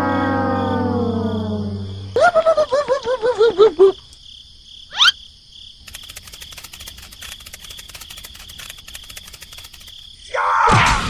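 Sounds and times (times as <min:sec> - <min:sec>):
pulsed chirping: 0:04.9 - 0:05.2
squeaky warbling tones: 0:04.9 - 0:05.2.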